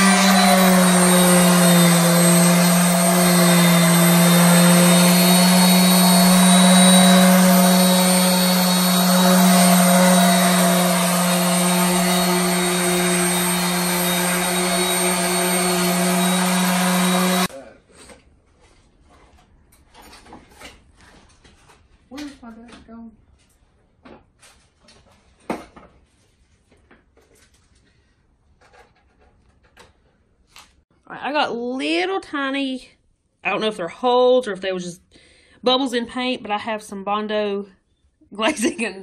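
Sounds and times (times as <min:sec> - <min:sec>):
orbital sander running: 0:00.0 - 0:17.5
sanding pad scuffing paint: 0:00.0 - 0:17.5.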